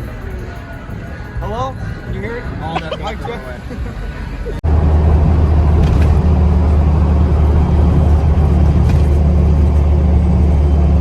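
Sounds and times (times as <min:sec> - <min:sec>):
diesel engine droning: 0:03.2 - 0:11.0.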